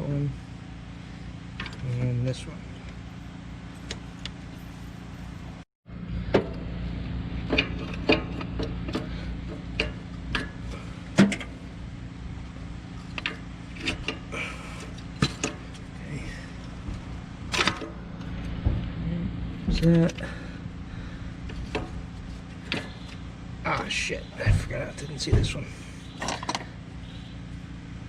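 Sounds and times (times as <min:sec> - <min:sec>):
steady low hum: 0:00.0 - 0:28.0
knocks: 0:24.4 - 0:25.6.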